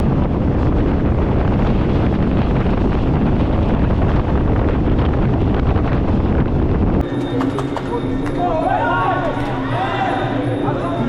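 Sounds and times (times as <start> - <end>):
wind buffeting microphone: 0.0 - 7.2.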